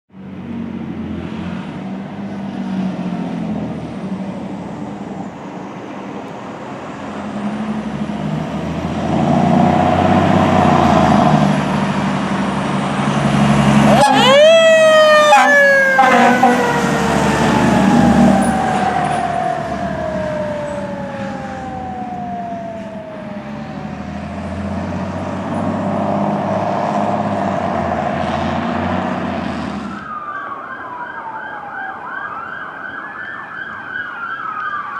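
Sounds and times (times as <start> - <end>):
fire engine rumbling: 0.4 - 31.4
siren wailing: 13.0 - 25.6, 29.8 - 34.9.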